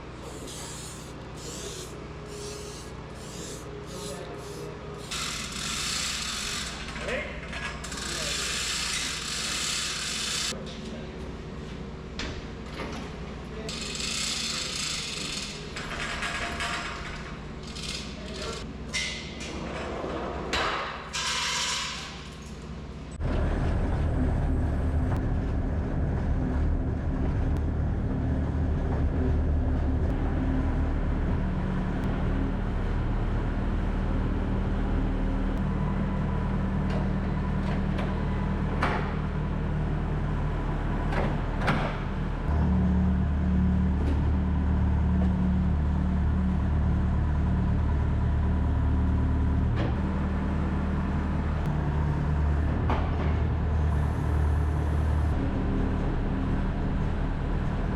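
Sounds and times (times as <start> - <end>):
large engine humming: 23.2 - 57.9.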